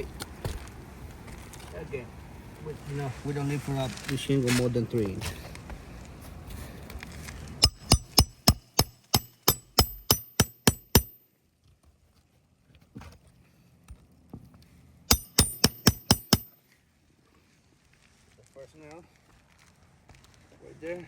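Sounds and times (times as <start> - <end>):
hammer striking nail: 7.6 - 11.2, 15.1 - 16.6.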